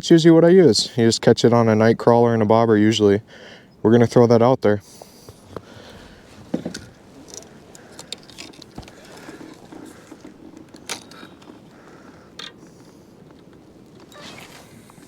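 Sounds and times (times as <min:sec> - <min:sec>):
fishing tackle clicks and rattles: 0:05.6 - 0:14.2.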